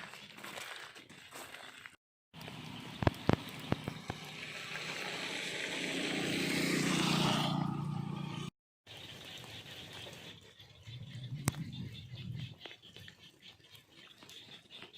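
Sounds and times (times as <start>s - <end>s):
small engine passing by: 2.4s - 10.4s.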